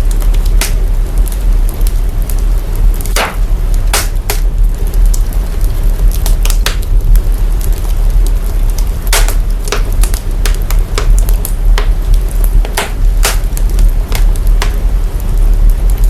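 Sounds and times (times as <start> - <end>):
deep sub-bass rumble: 0.0 - 16.0
fire crackling and popping: 0.0 - 16.0.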